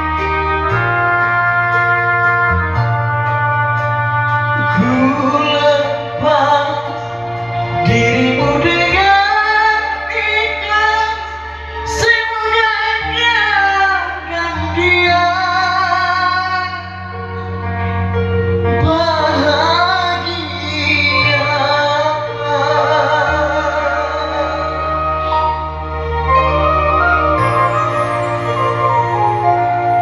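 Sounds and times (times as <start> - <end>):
backing track with bass notes: 0.0 - 30.0
woman singing with vibrato: 4.6 - 17.2, 18.8 - 25.8.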